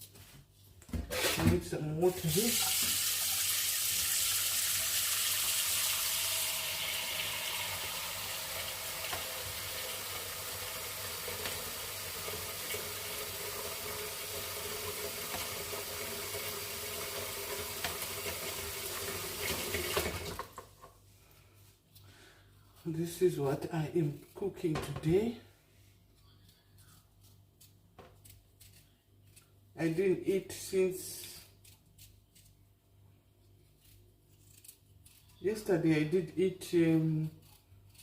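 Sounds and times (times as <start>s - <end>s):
tap water running into container: 2.3s - 20.7s.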